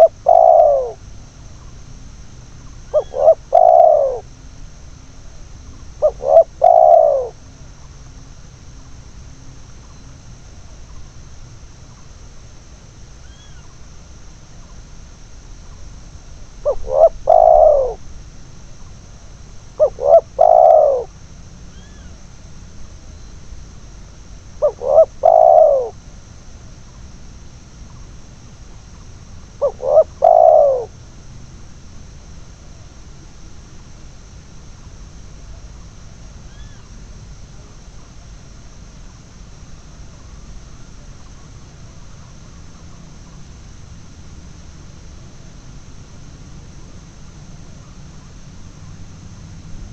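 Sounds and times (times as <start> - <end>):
dove cooing: 0.0 - 4.4, 5.3 - 7.9, 15.5 - 22.4, 24.3 - 27.0, 27.7 - 31.3.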